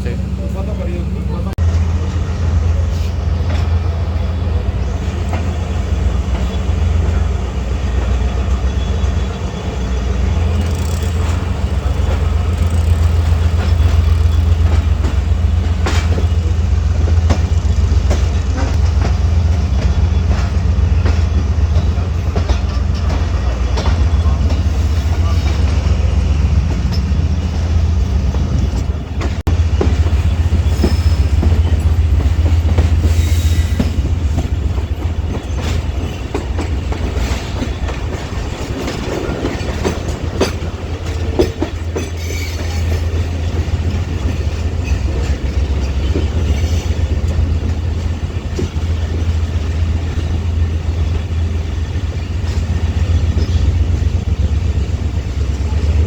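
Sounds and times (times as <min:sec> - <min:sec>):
train wheels rumbling: 0:00.0 - 0:56.0
track clicks and knocks: 0:10.2 - 0:33.1.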